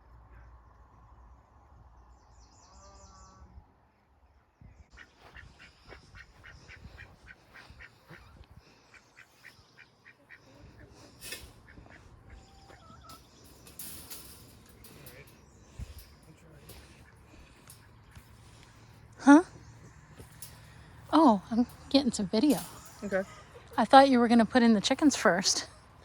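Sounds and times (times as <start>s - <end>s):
ducks quacking softly: 4.9s - 13.2s.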